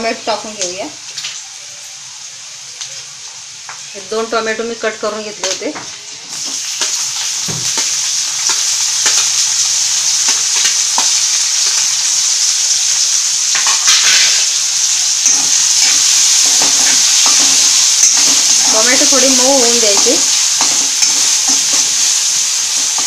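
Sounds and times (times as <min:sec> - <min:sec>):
tomatoes sizzling in hot oil: 0:00.0 - 0:23.0
steel spoon scraping pan: 0:13.6 - 0:23.0.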